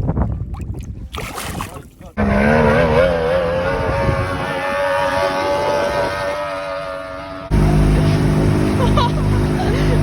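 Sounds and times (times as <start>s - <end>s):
water and wind noise: 0.0s - 10.0s
outboard motor running: 3.8s - 10.0s.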